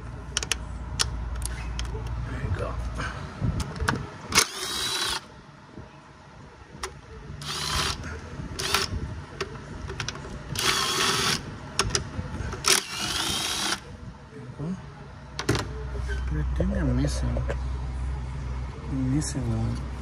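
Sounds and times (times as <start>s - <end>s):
power driver whining: 3.7s - 5.3s, 7.4s - 9.0s, 9.6s - 13.9s.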